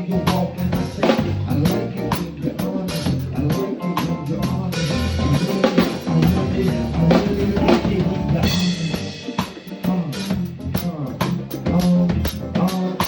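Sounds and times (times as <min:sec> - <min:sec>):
live band music: 0:00.0 - 0:13.0
kick drum and snare beat: 0:04.5 - 0:12.8.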